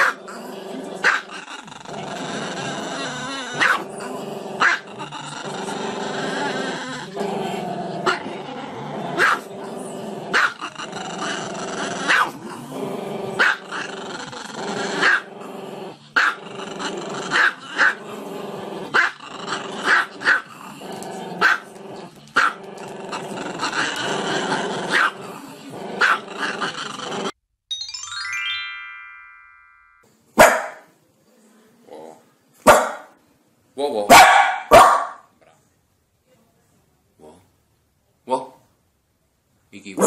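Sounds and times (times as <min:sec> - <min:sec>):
dog barking: 0:03.6 - 0:03.8, 0:09.2 - 0:09.5, 0:10.3 - 0:10.6, 0:12.1 - 0:12.4, 0:13.4 - 0:13.6, 0:15.0 - 0:15.2, 0:21.4 - 0:21.6, 0:24.9 - 0:25.1, 0:26.0 - 0:26.2, 0:30.4 - 0:30.9, 0:32.6 - 0:33.2, 0:34.1 - 0:35.3.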